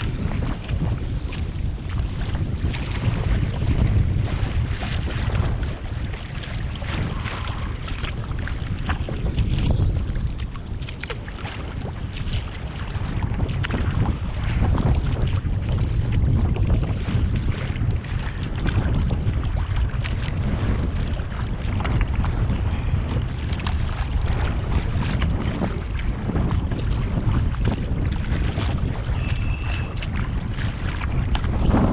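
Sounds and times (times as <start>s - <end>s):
water lapping around kayak: 0.0s - 31.9s
wind rumbling on microphone: 0.0s - 31.9s
thin high whistle: 29.2s - 29.7s.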